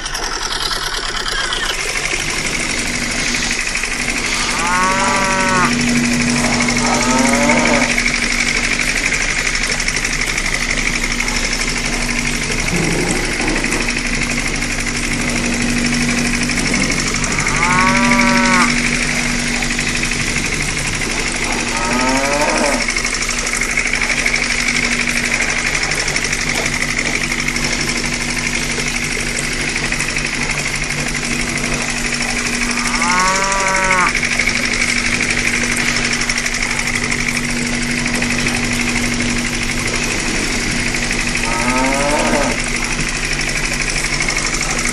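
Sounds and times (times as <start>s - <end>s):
engine drone: 0.0s - 44.9s
cows mooing: 2.7s - 9.7s, 11.2s - 26.8s, 31.3s - 36.6s, 37.4s - 43.0s.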